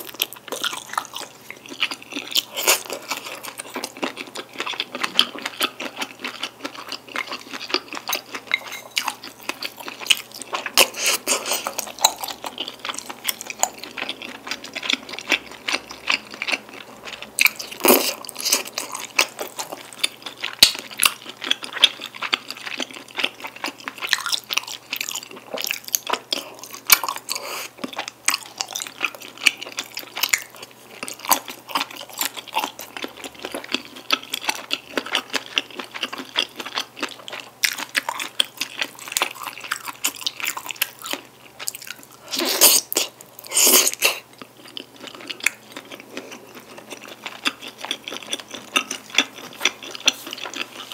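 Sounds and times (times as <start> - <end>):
wet sticky chewing: 0.0 - 50.9.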